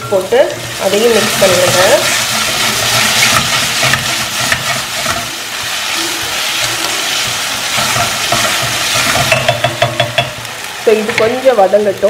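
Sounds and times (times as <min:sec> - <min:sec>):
vegetables sizzling in hot oil: 0:00.0 - 0:12.0
spoon tapping: 0:07.8 - 0:10.5.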